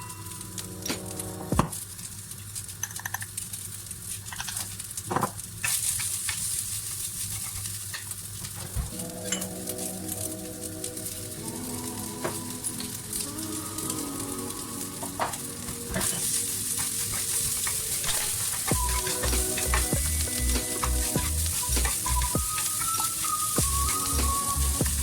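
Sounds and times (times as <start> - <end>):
rice sizzling in a pan: 0.0 - 25.0
utensil clicking against pan: 2.8 - 3.4, 16.8 - 25.0.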